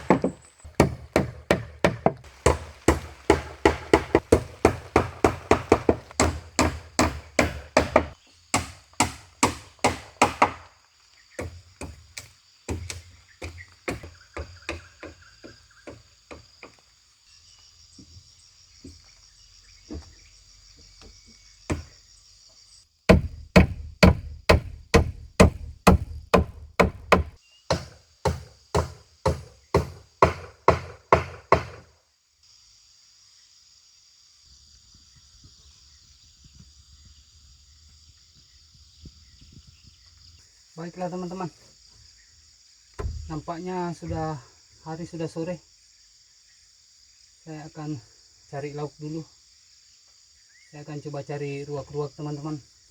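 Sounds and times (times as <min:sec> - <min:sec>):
rapid chopping blows: 0:00.0 - 0:10.7, 0:23.1 - 0:31.8
insects buzzing: 0:00.0 - 0:52.9.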